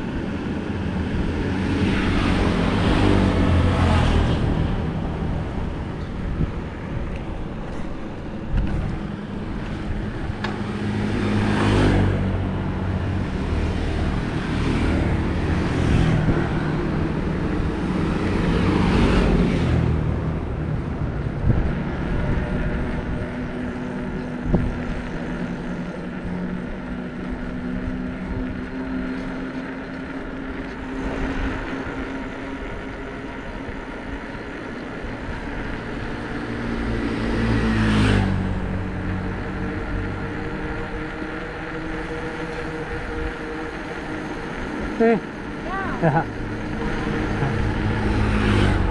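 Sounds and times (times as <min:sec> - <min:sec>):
wind noise: 0:00.0 - 0:14.5, 0:15.2 - 0:27.5
bicycle tyres rolling on road: 0:00.0 - 0:48.9
vehicles passing by: 0:00.0 - 0:48.9.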